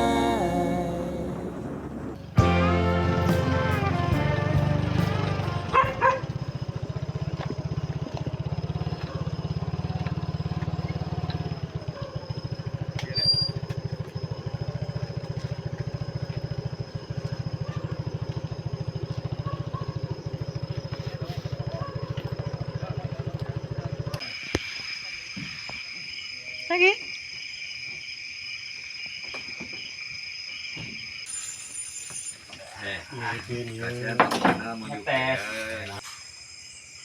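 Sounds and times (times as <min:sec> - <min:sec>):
small engine running: 0:01.3 - 0:24.5.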